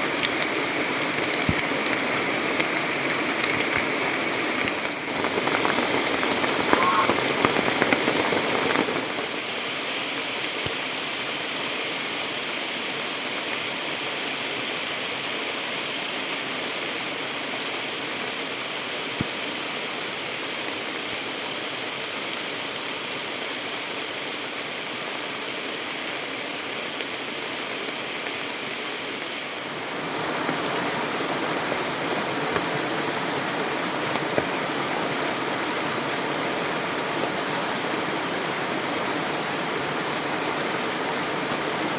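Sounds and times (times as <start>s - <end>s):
stream rushing: 0.0s - 11.6s, 28.4s - 41.9s.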